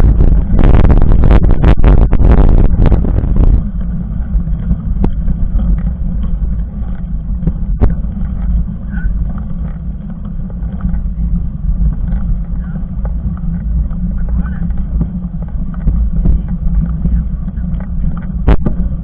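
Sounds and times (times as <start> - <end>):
bike tyres rolling over trail: 0.0 - 19.0
wind buffeting microphone: 0.0 - 19.0.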